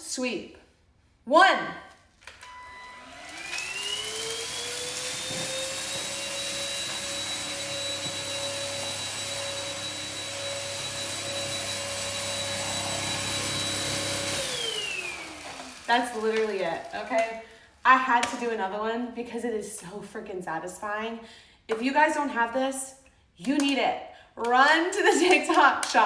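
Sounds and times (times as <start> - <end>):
vacuum cleaner motor whining: 2.2 - 17.5.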